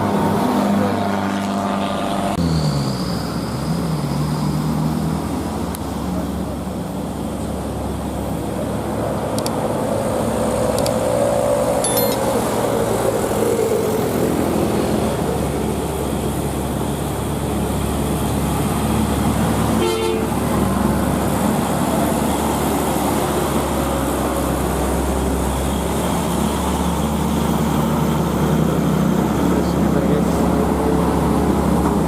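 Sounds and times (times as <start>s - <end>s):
heavy road vehicles running: 0.0s - 32.0s
tone sliding down: 11.8s - 12.2s
short vehicle horn toot: 19.8s - 20.3s.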